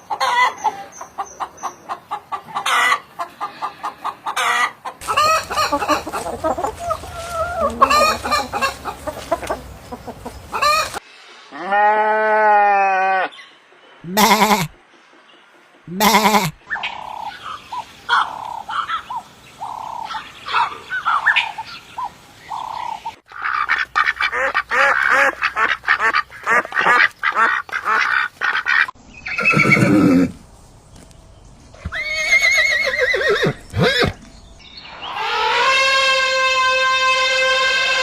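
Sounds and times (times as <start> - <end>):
farm bird calls: 0.0 - 11.0, 13.3 - 30.4, 31.0 - 38.0
ducks quacking: 1.4 - 11.0, 14.1 - 14.8, 15.9 - 16.6, 23.3 - 29.0.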